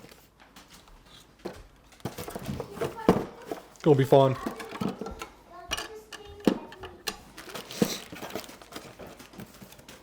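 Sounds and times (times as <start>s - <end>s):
packaging being handled: 7.3s - 10.0s.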